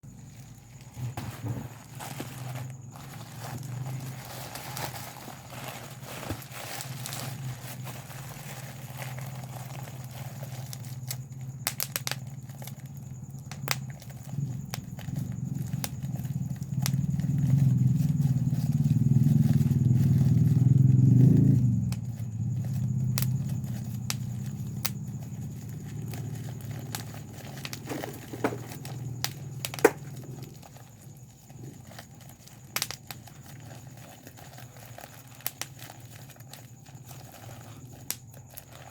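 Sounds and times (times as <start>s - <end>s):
bubble wrap popping: 0.0s - 38.9s.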